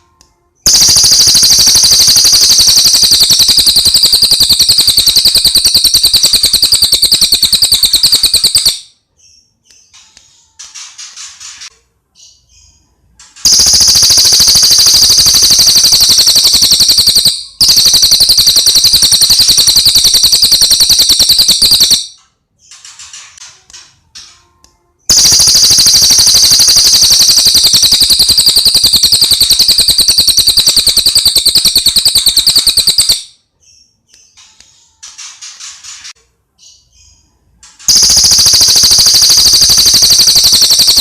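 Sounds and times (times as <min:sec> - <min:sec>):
songbird rapid high-pitched trills: 0:13.5 - 0:22.0, 0:25.1 - 0:33.2.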